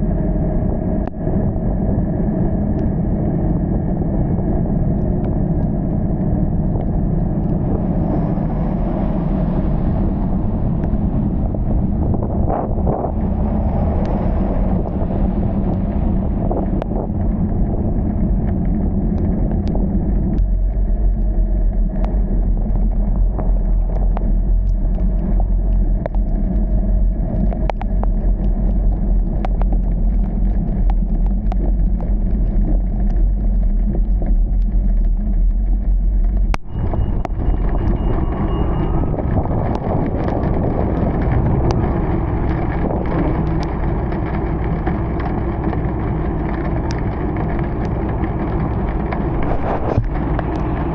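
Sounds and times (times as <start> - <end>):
car engine and road rumble: 0.0 - 50.9
rain ticking on car: 13.3 - 50.9.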